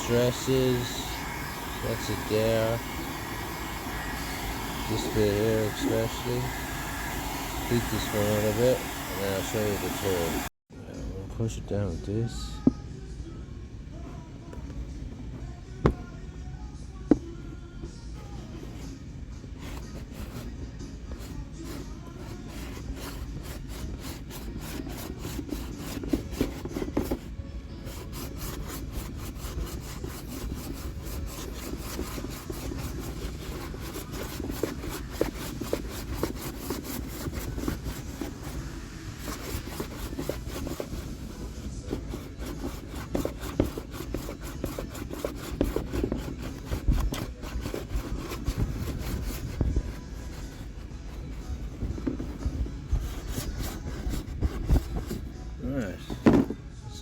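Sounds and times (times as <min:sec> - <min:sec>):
heat gun blowing: 0:00.0 - 0:10.6
hand tool scraping plastic: 0:19.6 - 0:55.4
knocks on plastic: 0:56.1 - 0:56.6.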